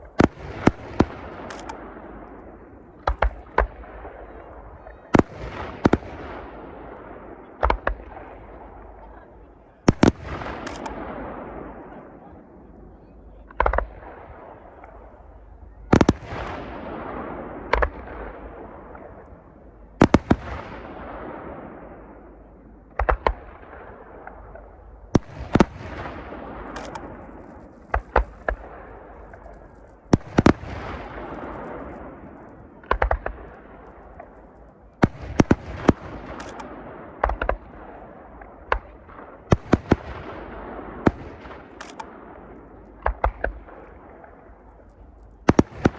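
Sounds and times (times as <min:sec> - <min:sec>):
firework shells bursting: 0:09.9 - 0:11.1, 0:25.2 - 0:37.7, 0:41.0 - 0:45.9.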